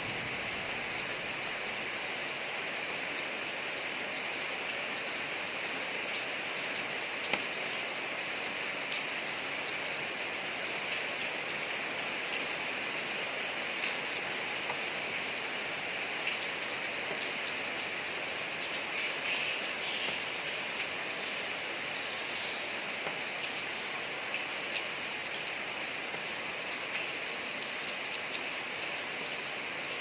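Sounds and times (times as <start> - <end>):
rain falling on a street: 0.0 - 30.0
rain drop ticks: 7.2 - 7.7, 13.7 - 21.3, 22.1 - 28.5.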